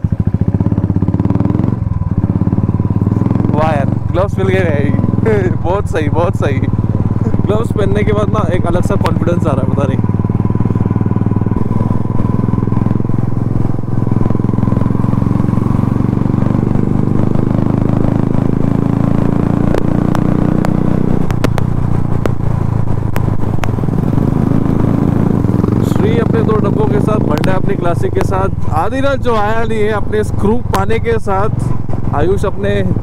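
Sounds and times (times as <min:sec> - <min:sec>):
motorcycle engine running: 0:00.0 - 0:33.0
sharp clicks: 0:19.6 - 0:23.9.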